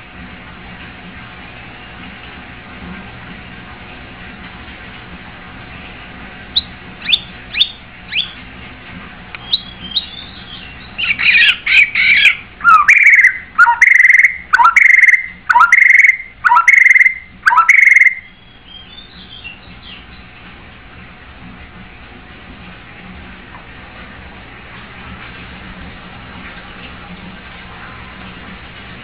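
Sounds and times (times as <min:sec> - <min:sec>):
bird singing: 0:06.6 - 0:08.4, 0:09.4 - 0:20.3
faint bird twittering: 0:06.6 - 0:08.4, 0:09.4 - 0:20.3.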